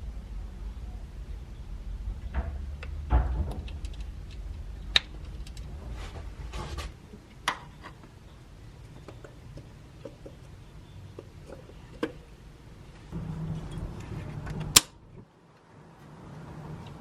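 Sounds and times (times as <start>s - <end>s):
low rumble: 0.0s - 7.4s, 13.1s - 15.2s.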